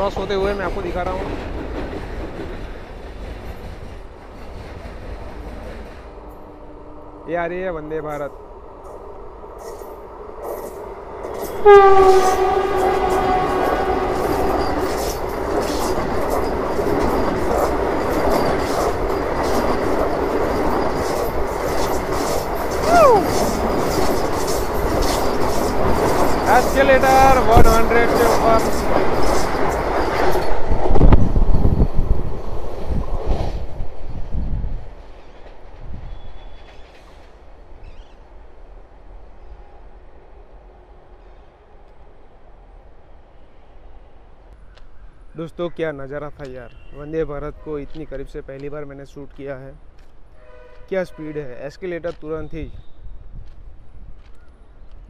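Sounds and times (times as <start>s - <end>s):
train rushing past: 0.0s - 44.5s
wheels clattering over rail joints: 9.6s - 31.8s
train horn: 11.4s - 14.8s, 50.3s - 51.5s.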